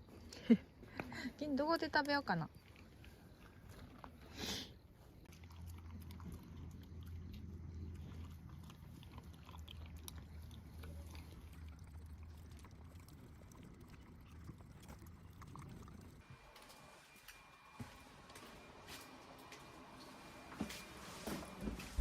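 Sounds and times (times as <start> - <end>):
dog chewing food: 2.5 - 4.3, 4.9 - 16.2.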